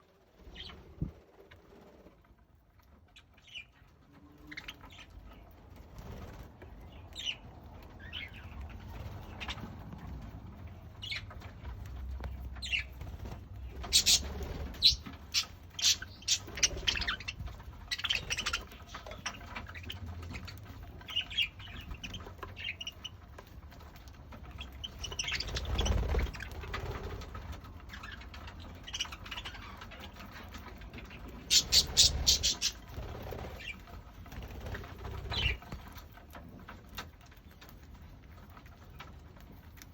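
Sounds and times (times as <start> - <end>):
budgerigars chirping: 12.2 - 23.3, 24.5 - 26.8, 27.8 - 33.9, 34.8 - 35.7.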